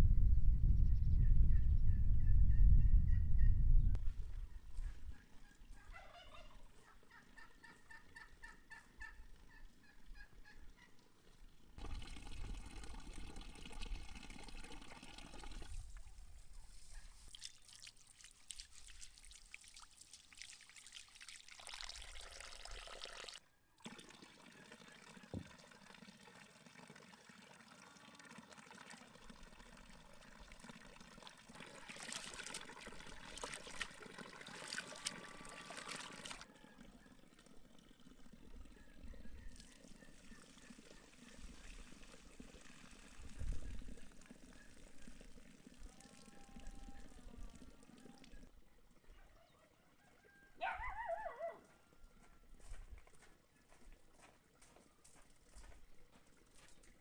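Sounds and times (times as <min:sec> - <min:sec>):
farmyard fowl calling: 0:05.1 - 0:11.0.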